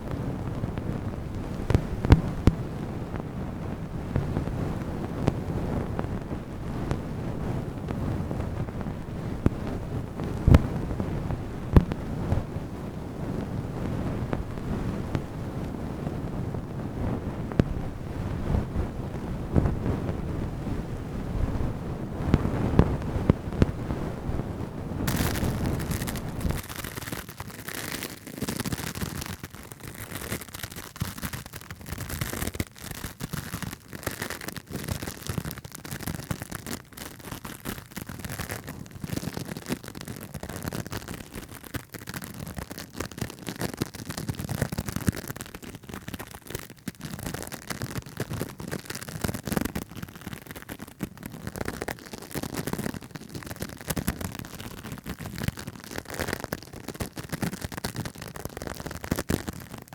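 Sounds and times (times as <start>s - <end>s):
fast tapping and scratching: 25.1s - 59.9s.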